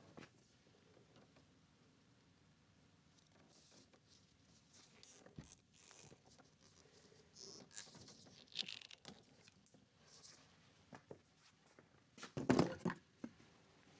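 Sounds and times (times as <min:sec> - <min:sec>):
hands working with wire: 0:04.8 - 0:09.6.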